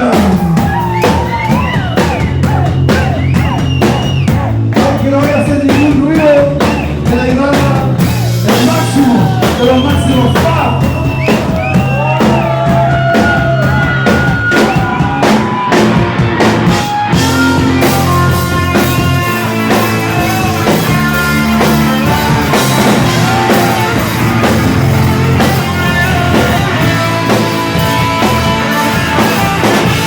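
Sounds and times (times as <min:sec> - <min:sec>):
rock band playing live: 0:00.0 - 0:30.0
electric guitar bending notes: 0:07.8 - 0:30.0.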